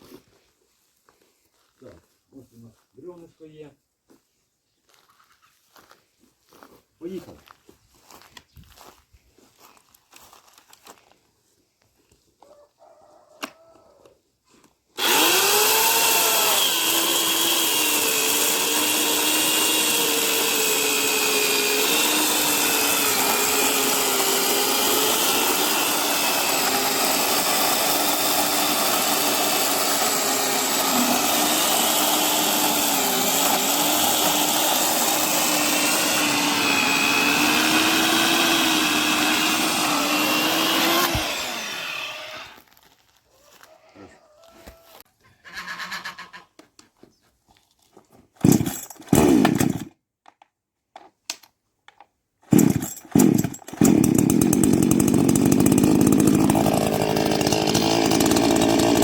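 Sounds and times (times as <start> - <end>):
electric chainsaw sawing log: 15.0 - 42.7, 48.4 - 49.9, 52.5 - 59.0.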